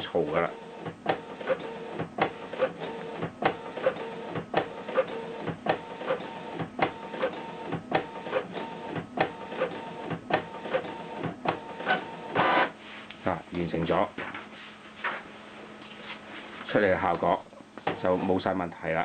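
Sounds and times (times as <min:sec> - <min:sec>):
printer carriage whirring: 0:00.0 - 0:12.8, 0:16.8 - 0:18.6.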